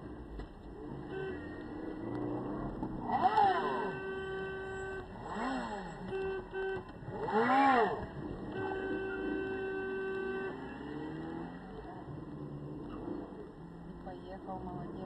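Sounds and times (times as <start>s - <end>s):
steady road hum: 0.0s - 15.0s.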